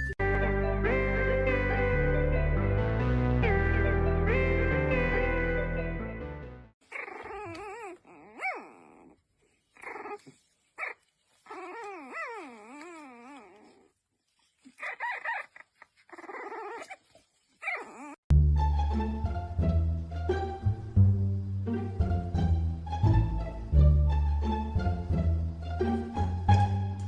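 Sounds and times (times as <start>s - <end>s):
background music: 0.0s - 6.8s, 18.3s - 27.0s
dog whining and howling: 6.9s - 9.2s, 9.8s - 14.0s, 14.8s - 18.2s.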